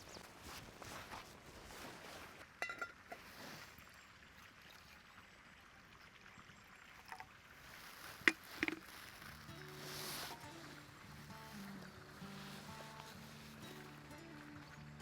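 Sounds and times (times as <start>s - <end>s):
outdoor background hiss: 7.0s - 15.0s.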